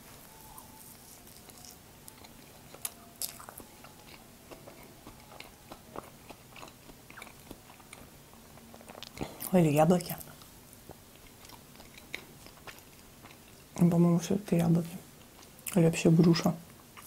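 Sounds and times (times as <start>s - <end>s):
person chewing muffin: 0.3s - 13.8s.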